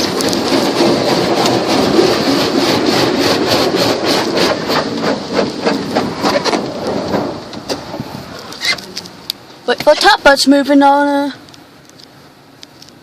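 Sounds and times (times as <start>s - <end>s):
brushes rubbing and slapping car: 0.0s - 9.0s
car wash spray: 0.0s - 10.1s.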